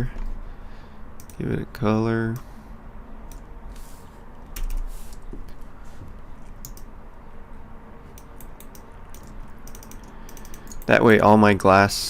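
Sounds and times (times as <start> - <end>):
keyboard typing: 4.5 - 5.2, 6.5 - 6.9, 8.2 - 11.0.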